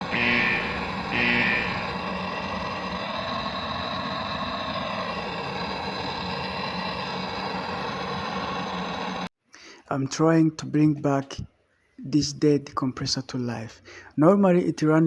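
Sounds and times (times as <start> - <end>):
steady low hum: 0.0 - 9.3
short high electronic beep: 0.1 - 2.0.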